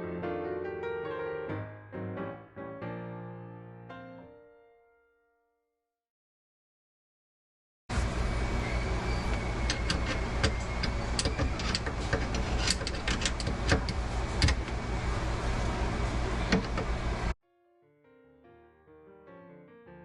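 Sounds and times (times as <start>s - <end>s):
garbage disposal motor hum: 7.9s - 17.4s
sharp clicks and rattles: 9.7s - 14.8s.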